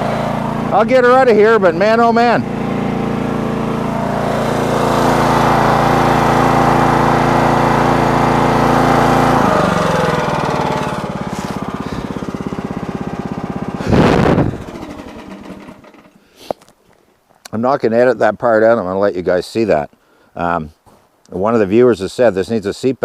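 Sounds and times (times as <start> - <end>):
small gas engine running: 0.0 - 16.5.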